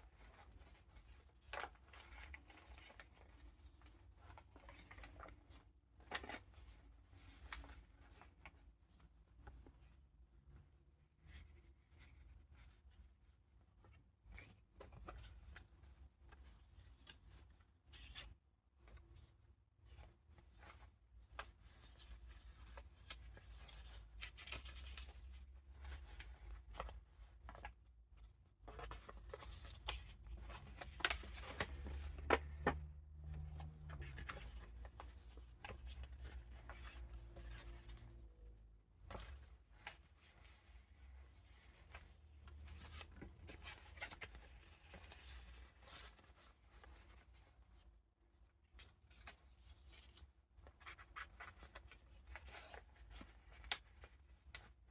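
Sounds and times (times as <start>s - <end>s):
paper rustling and crinkling: 0.0s - 9.8s, 19.9s - 27.9s, 28.6s - 47.8s, 48.7s - 54.9s.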